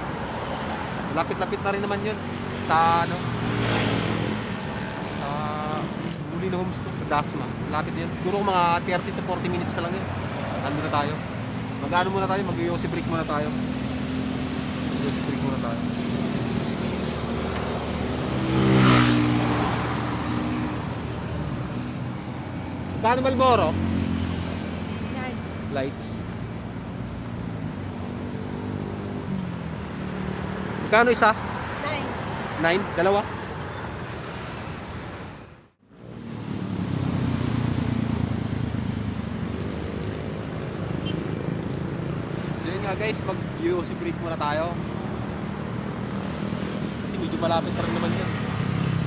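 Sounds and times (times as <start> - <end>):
steady traffic noise: 0.0 - 49.0
vehicle passing by: 2.8 - 5.9, 12.9 - 33.4, 36.0 - 49.0.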